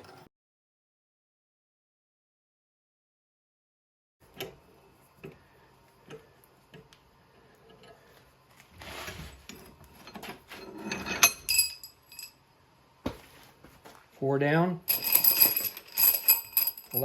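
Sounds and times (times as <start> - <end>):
metal scrape: 8.7 - 11.5
metal clinks: 11.0 - 12.4, 14.9 - 17.0.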